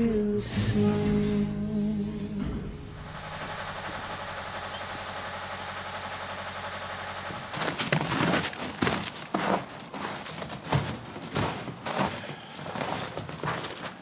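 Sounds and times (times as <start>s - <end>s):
motor humming: 0.0s - 9.3s.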